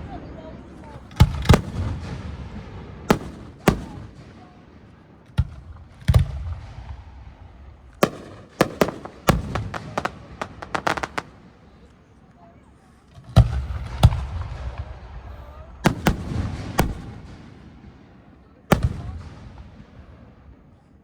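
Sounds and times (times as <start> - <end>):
fireworks bursting: 1.1 - 2.2, 3.1 - 4.4, 7.9 - 11.6, 15.8 - 17.7, 18.7 - 19.7
small firework pops: 3.1 - 4.4, 8.0 - 12.0, 15.8 - 17.5.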